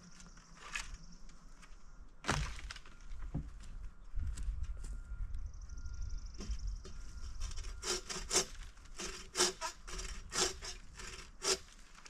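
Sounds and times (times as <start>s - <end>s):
hand saw cutting wood: 7.5s - 11.8s.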